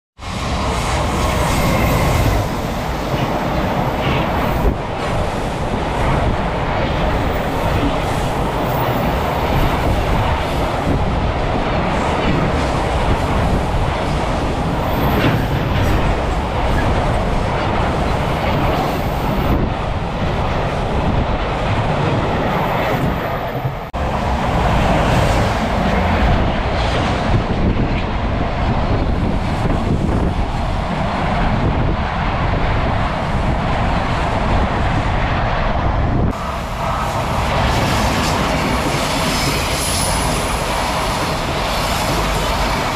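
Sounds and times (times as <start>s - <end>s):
freight train wheels on rails: 0.2s - 42.9s.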